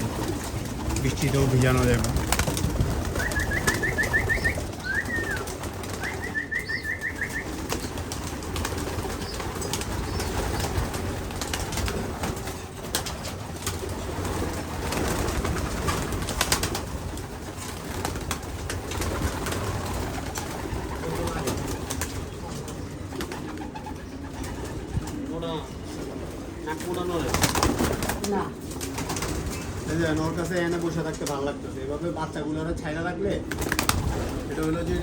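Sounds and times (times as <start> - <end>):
pigeons rustling: 0.0 - 32.1, 33.4 - 35.0
high repeated chirps: 6.1 - 7.6.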